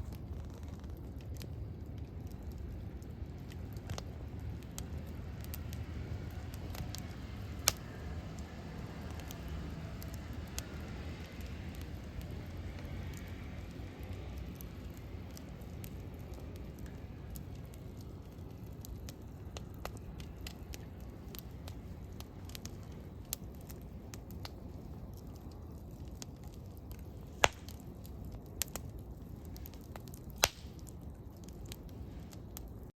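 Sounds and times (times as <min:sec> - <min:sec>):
sharp fire pops: 0:00.0 - 0:32.8
campfire burning: 0:00.0 - 0:32.9
fire crackling: 0:00.0 - 0:32.9.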